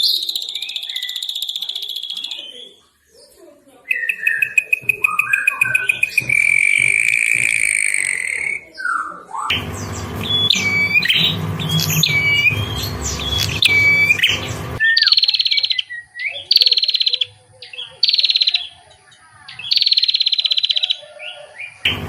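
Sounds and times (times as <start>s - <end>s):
songbird whistled notes: 0.0s - 2.8s, 3.9s - 18.8s
high buzzy bird trills: 9.4s - 17.3s
steady low hum: 9.5s - 14.8s.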